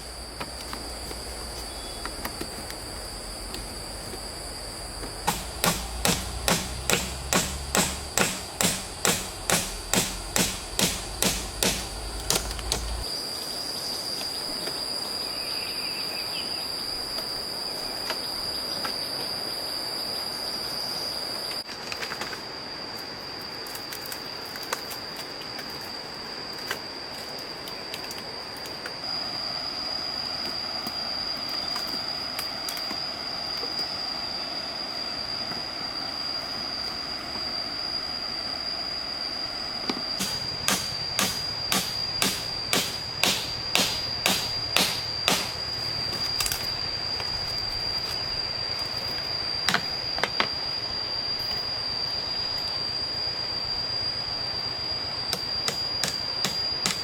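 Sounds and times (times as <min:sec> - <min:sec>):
high-pitched insect drone: 0:00.0 - 0:57.0
knocks on wood: 0:05.2 - 0:12.9.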